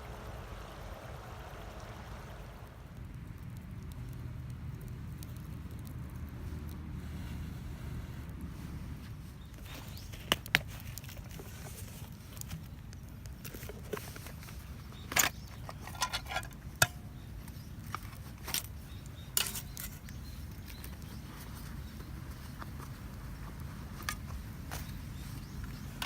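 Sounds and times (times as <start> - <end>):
low steady rumble: 0.0 - 26.0
metal cookware clinking: 15.8 - 17.0.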